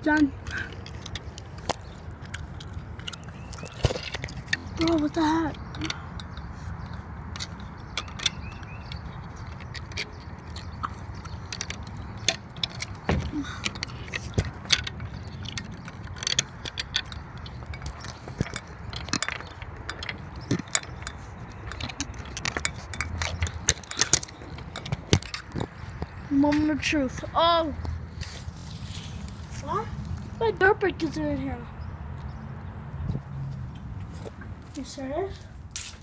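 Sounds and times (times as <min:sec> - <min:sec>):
metal lock clicking and rattling: 0:00.1 - 0:26.7.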